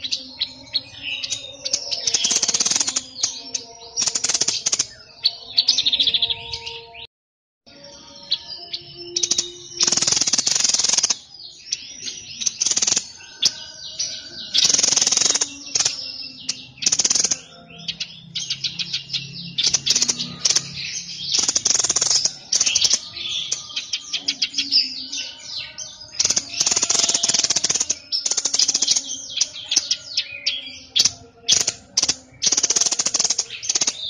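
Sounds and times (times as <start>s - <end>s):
songbird singing chirps and trills: 0.0s - 7.1s, 7.7s - 34.0s
harsh chattering bursts: 19.6s - 23.0s, 26.2s - 29.0s, 31.5s - 34.0s.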